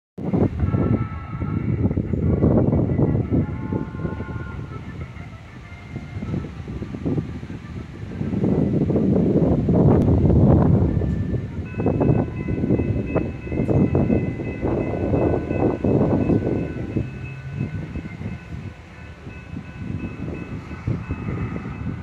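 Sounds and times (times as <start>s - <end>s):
low train rumble: 0.2s - 22.0s
wind on microphone: 0.2s - 22.0s
steady high ringing: 0.5s - 8.7s, 10.6s - 22.0s.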